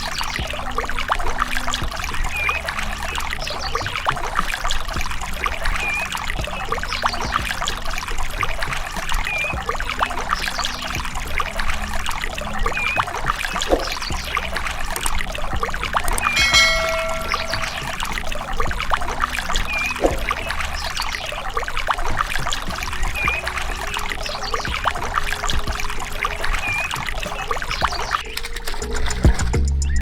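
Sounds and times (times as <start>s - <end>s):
water pouring and splashing: 0.0s - 29.4s
short high chirp: 16.2s - 18.1s
brief pitched tone: 16.3s - 18.0s.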